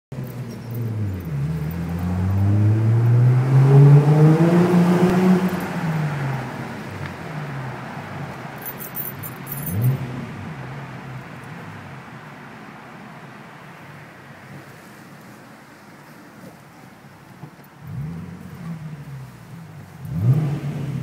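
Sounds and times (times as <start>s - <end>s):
car engine accelerating: 0.2s - 7.9s, 17.8s - 21.0s.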